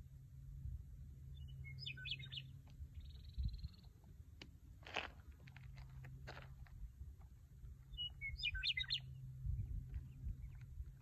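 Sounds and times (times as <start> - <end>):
bird trill: 1.3 - 3.8, 7.9 - 9.2
birds chirping: 1.3 - 4.0, 7.8 - 11.0
low rumble: 5.2 - 11.0.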